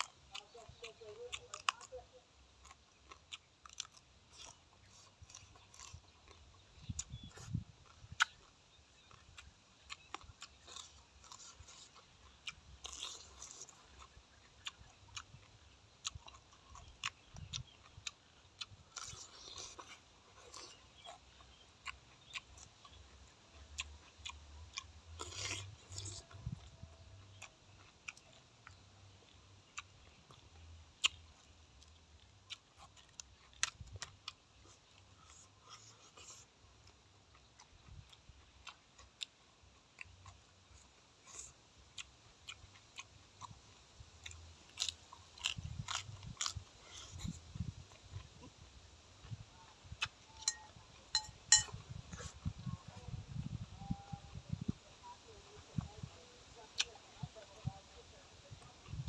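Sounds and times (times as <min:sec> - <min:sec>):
chewing crisp vegetables: 0:00.0 - 0:59.0.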